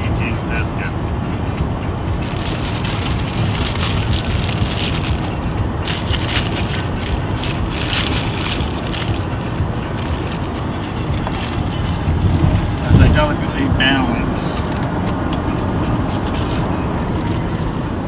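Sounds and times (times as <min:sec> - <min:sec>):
road noise inside car: 0:00.0 - 0:18.0
paper wrapper crinkling: 0:02.1 - 0:12.9, 0:16.1 - 0:17.6.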